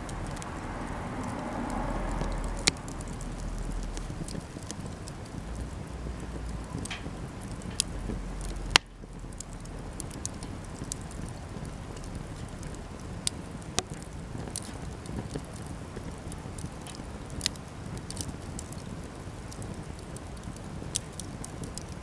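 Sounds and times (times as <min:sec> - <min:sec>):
steady low noise: 0:00.0 - 0:15.2
campfire crackling and popping: 0:00.0 - 0:22.0.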